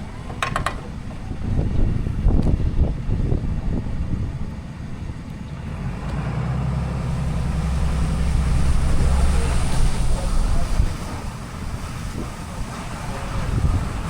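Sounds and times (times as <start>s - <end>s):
pickup truck engine rumble: 0.0s - 14.0s
low thumps: 6.8s - 12.3s.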